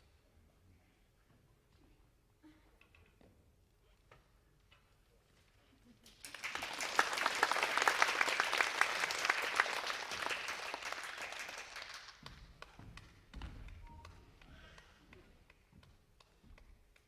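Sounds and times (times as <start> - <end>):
audience applauding: 6.1 - 12.7.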